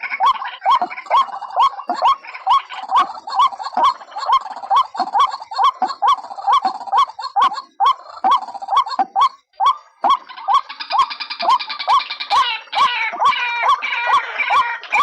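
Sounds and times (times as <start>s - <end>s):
waterhen calling rising notes: 0.2s - 15.0s.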